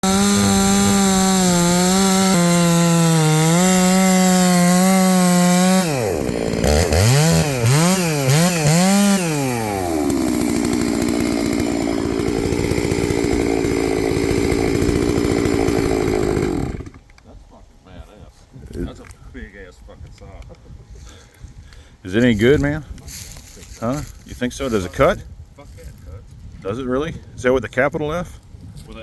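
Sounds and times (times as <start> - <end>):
chainsaw revving and idling: 0.0 - 17.1.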